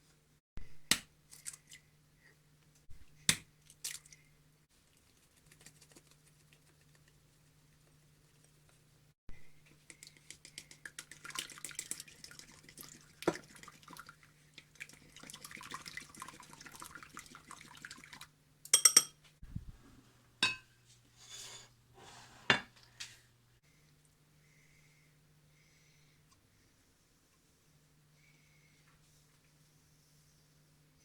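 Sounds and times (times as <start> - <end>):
utensils and dishes clinking: 18.8 - 19.2.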